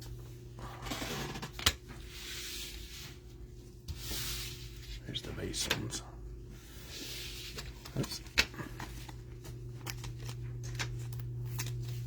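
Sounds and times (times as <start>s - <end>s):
cards flipped by hand: 7.5s - 12.0s.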